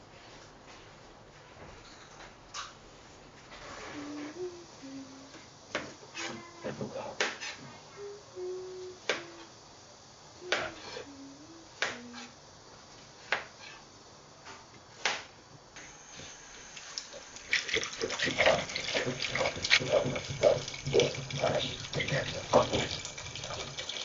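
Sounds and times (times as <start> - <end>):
dishes clattering: 17.5 - 23.7
tap running into a sink: 17.5 - 24.0.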